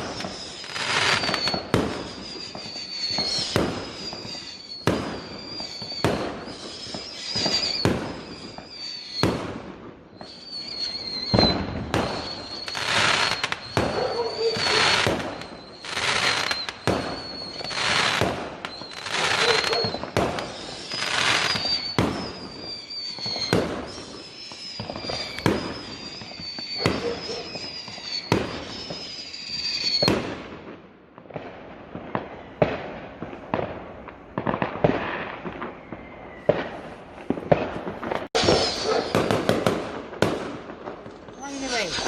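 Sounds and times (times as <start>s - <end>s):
steady high whistle: 0.0s - 9.4s, 10.1s - 30.1s, 38.4s - 39.8s, 41.3s - 42.0s
fireworks whooshing: 0.0s - 30.6s, 31.4s - 42.0s
fireworks bangs and crackles: 0.0s - 42.0s.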